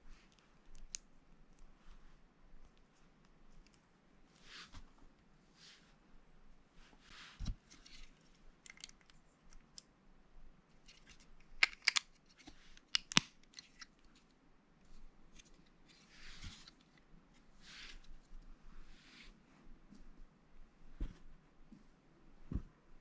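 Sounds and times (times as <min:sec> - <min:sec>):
plastic bricks clicking: 0:11.6 - 0:12.1.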